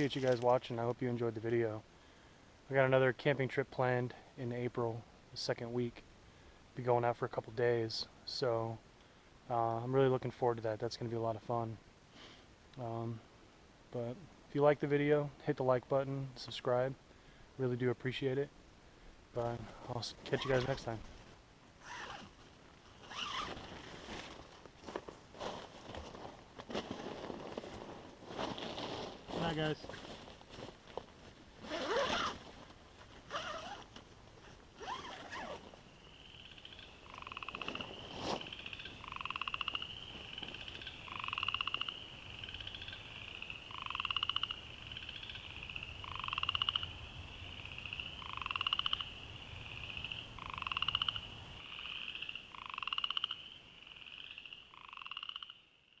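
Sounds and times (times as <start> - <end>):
frogs peeping chorus: 35.4 - 56.0
low pulsed frog trill: 36.0 - 56.0.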